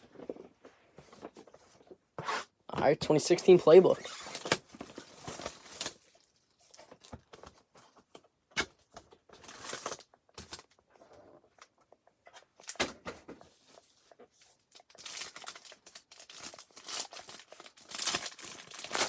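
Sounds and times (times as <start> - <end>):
wrapper rustling and tearing: 3.9 - 7.1, 9.4 - 10.7, 13.8 - 19.0.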